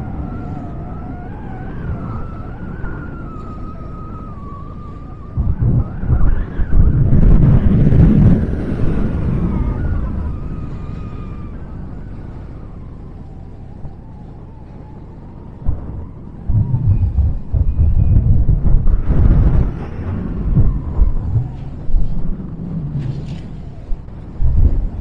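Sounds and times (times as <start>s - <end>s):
wind buffeting microphone: 0.0s - 25.0s
freight train rumbling: 16.5s - 25.0s.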